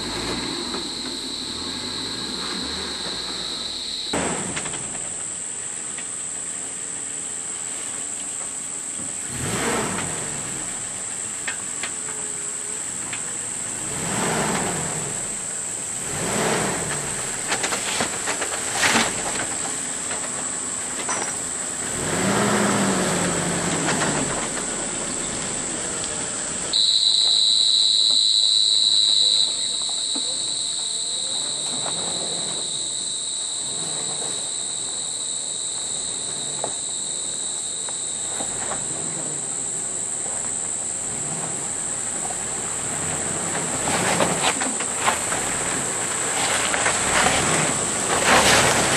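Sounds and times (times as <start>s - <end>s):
car engine revving: 0.0s - 5.9s, 9.2s - 48.9s
lower insect tone: 0.0s - 17.7s, 24.2s - 46.9s
high-pitched insect drone: 0.1s - 4.2s, 26.7s - 42.2s.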